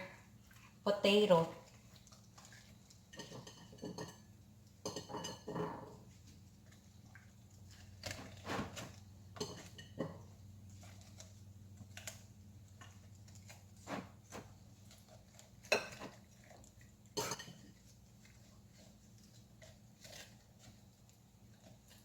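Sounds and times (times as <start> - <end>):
kitchen utensils knocking and clinking: 4.9 - 6.0.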